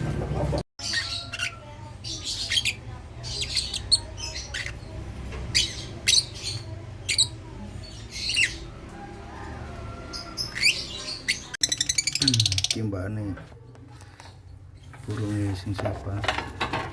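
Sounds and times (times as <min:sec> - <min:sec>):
lovebirds squawking: 0:00.8 - 0:09.2, 0:09.8 - 0:12.9.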